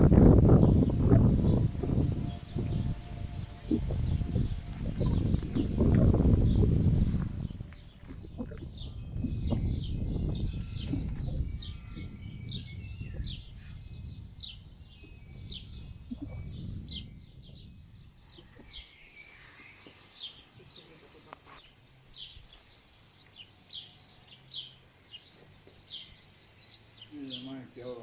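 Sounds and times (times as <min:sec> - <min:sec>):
low rumble: 0:00.0 - 0:18.8
bird chirping: 0:00.0 - 0:28.0.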